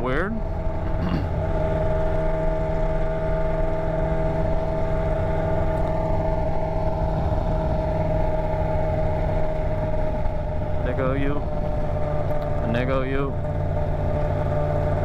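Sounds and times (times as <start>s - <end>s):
motorcycle engine without muffler: 0.0s - 15.0s.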